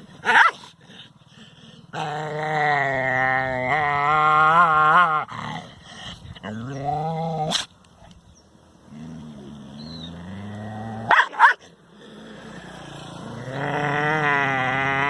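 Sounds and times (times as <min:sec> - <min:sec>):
dog barking: 0:00.2 - 0:00.7, 0:11.1 - 0:11.7
dog growling low: 0:01.4 - 0:07.8, 0:08.9 - 0:11.1, 0:11.8 - 0:15.0.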